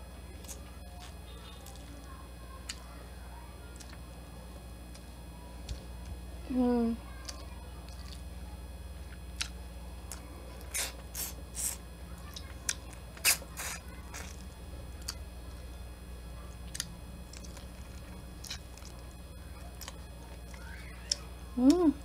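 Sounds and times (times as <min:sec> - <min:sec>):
chewing shrimp: 0:00.4 - 0:02.9, 0:03.6 - 0:04.1, 0:07.1 - 0:08.4, 0:09.0 - 0:15.7, 0:16.4 - 0:21.8.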